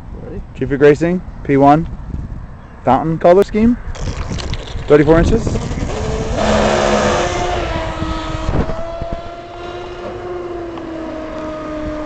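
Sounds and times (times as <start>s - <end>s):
electric motor whining: 4.4s - 12.0s.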